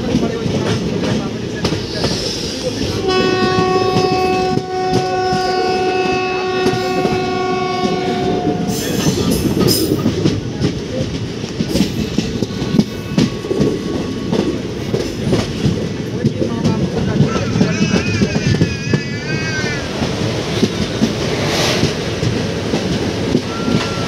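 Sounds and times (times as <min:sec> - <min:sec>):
train wheels clattering over rail joints: 0:00.0 - 0:24.0
train horn blast: 0:03.0 - 0:09.3.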